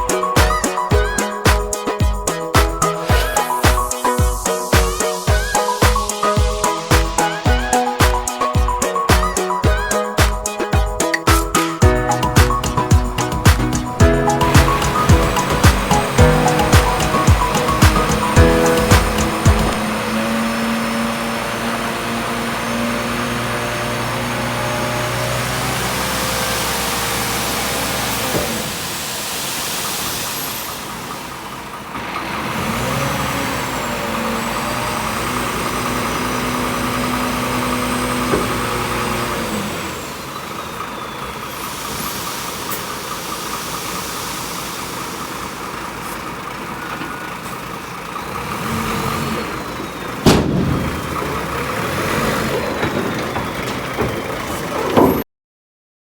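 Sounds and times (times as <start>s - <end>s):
vehicle engine running: 11.8s - 29.0s, 30.6s - 54.8s.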